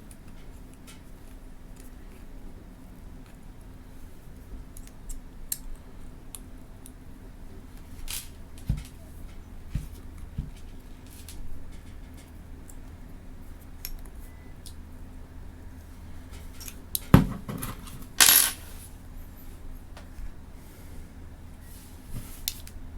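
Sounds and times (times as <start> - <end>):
steady low hum: 0.0 - 22.9
small parts clicking: 18.2 - 18.6.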